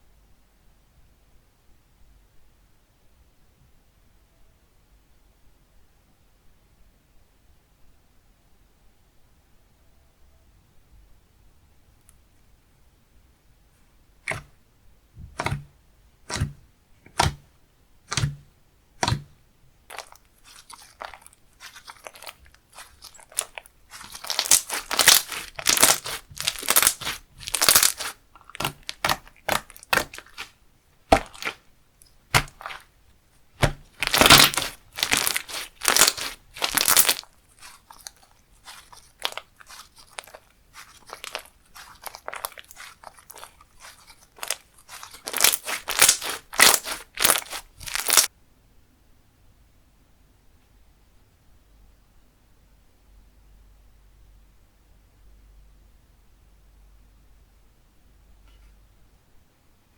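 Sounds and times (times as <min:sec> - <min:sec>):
hand squishing slime: 0:14.2 - 0:14.6, 0:15.2 - 0:48.3.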